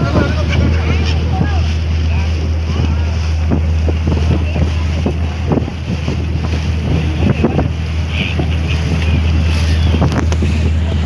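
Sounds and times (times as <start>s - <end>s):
ferry engine drone: 0.0s - 11.0s
water rushing past hull: 0.0s - 11.0s
wind buffeting microphone: 0.0s - 11.0s.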